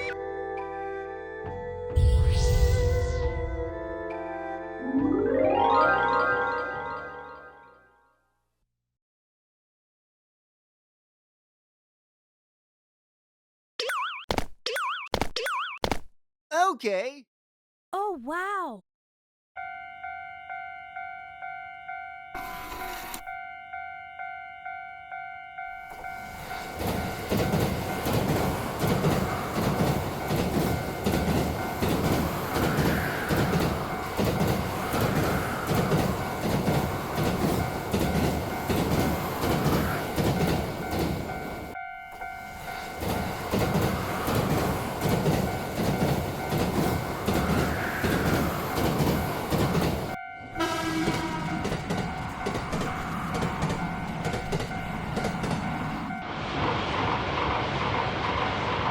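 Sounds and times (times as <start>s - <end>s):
train wheels clattering: 25.9s - 41.8s, 42.4s - 56.2s.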